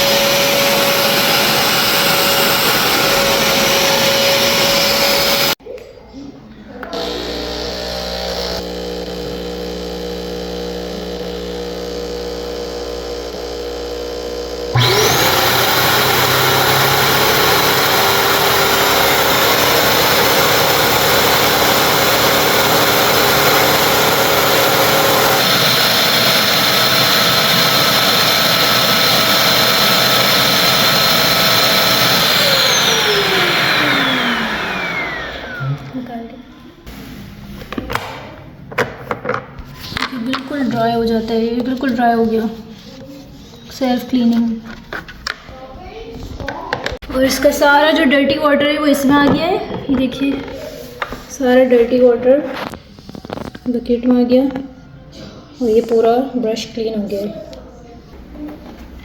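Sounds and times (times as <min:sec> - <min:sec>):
vacuum motor whining: 0:00.0 - 0:05.6, 0:06.8 - 0:36.3.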